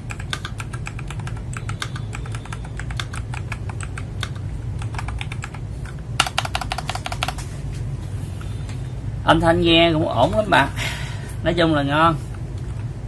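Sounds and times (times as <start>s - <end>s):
mechanical keyboard keystroke clacks: 0.0s - 7.5s
steady low hum: 0.0s - 13.0s.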